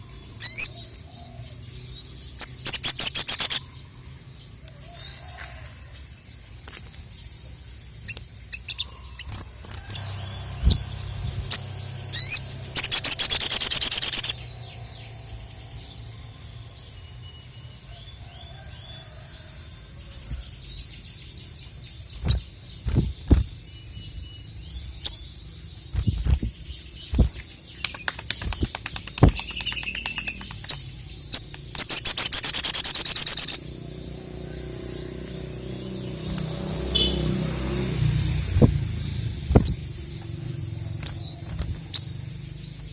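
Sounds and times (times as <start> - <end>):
sharp bird chips: 2.3 - 3.8, 6.5 - 16.1, 20.1 - 42.9
bird rattling trills: 8.1 - 14.4, 25.9 - 33.6.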